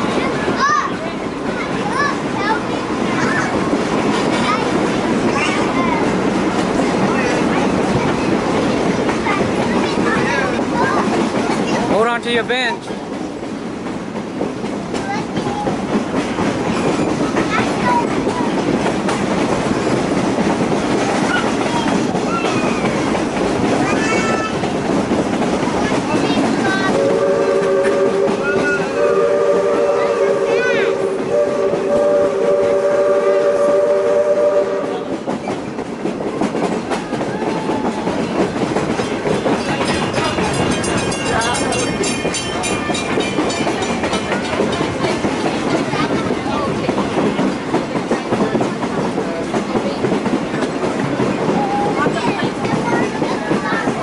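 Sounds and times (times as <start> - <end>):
train wheels clacking on rails: 0.0 - 54.0
steam locomotive whistle: 26.9 - 35.1.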